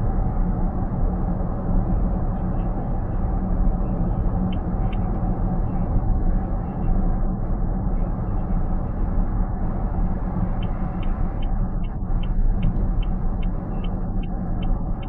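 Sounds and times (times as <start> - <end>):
road and engine rumble in car: 0.0 - 15.0
turn signal ticking: 9.7 - 15.0.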